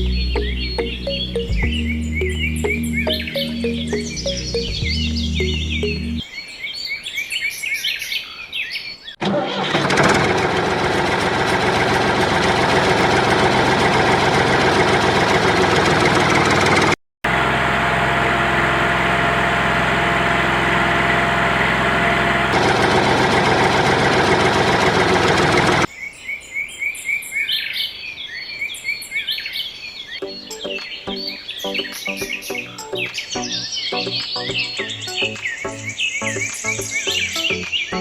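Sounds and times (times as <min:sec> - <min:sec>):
bird chirps: 0:00.0 - 0:09.2, 0:25.9 - 0:38.0
small motor running loudly: 0:10.4 - 0:16.7, 0:17.3 - 0:25.9.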